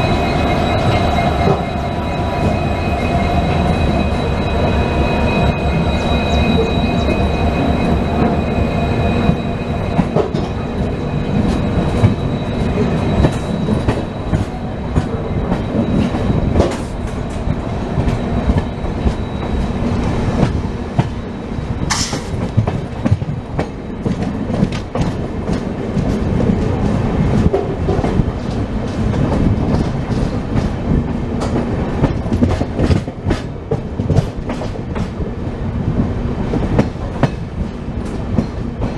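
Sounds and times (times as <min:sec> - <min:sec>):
thin high squeal: 0:00.0 - 0:14.8
train rumbling: 0:00.0 - 0:38.9.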